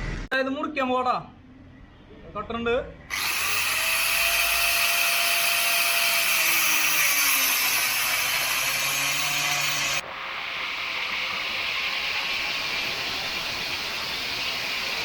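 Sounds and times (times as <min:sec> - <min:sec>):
power tool cutting metal casing: 0:03.1 - 0:10.0, 0:10.7 - 0:15.0.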